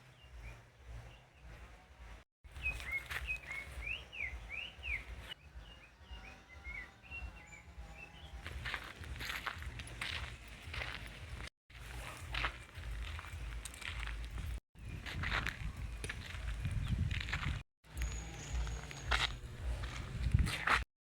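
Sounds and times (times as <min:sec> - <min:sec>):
bird chirps: 0:00.0 - 0:11.0, 0:14.8 - 0:19.9
bird whistling song: 0:02.5 - 0:08.4.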